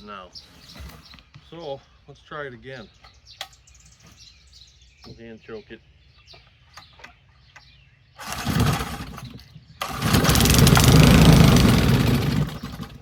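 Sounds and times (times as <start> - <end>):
small engine sputtering: 8.2 - 13.0.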